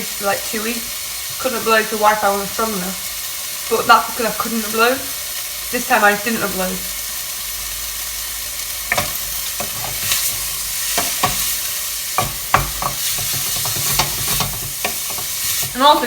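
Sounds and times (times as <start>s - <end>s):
vegetables sizzling in a pan: 0.0s - 16.0s
utensil knocking against pan: 8.9s - 10.2s, 10.9s - 11.5s, 12.2s - 15.8s.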